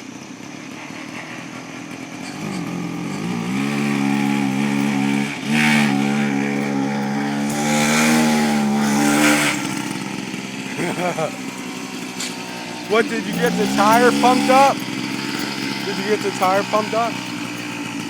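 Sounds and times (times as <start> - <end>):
mini bike engine revving: 0.0 - 18.0.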